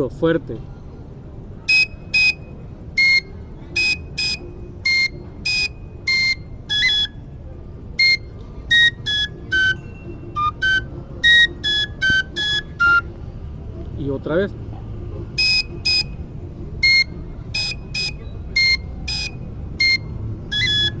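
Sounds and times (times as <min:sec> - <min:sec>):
shrill flute playing a dance tune: 0:01.7 - 0:07.3, 0:08.0 - 0:13.2, 0:15.3 - 0:16.2, 0:16.8 - 0:21.0.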